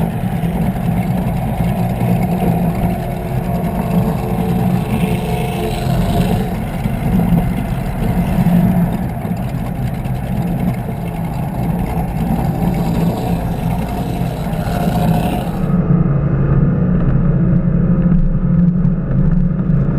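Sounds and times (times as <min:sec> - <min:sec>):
powerboat engines droning: 0:00.0 - 0:15.8
rushing water noise: 0:00.0 - 0:15.8.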